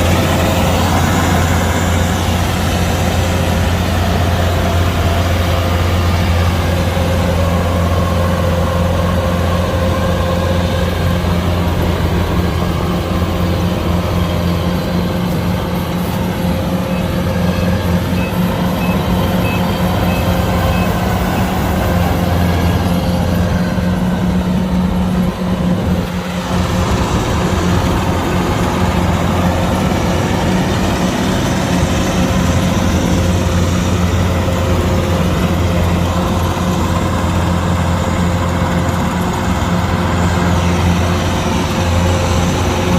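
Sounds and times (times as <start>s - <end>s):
combine harvester diesel engine: 0.0s - 42.9s
faint high electronic beeps: 16.8s - 21.5s.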